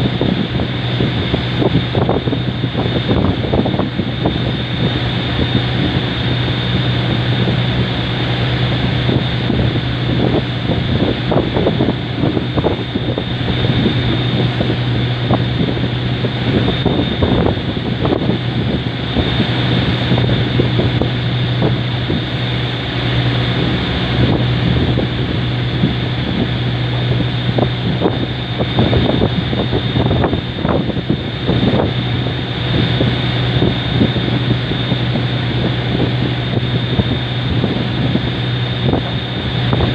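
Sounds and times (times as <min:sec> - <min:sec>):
boat engine droning: 0:00.0 - 0:39.9
wind buffeting microphone: 0:00.0 - 0:39.9.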